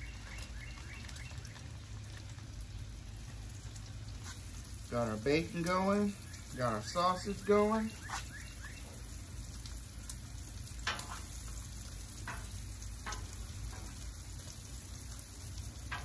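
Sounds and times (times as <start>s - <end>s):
meat sizzling on griddle: 0.0s - 16.0s.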